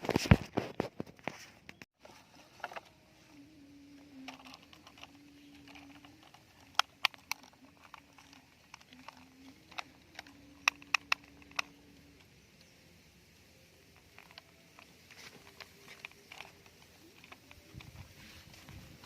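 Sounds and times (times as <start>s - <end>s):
plastic toys clicking together: 3.8s - 12.3s, 13.8s - 18.8s.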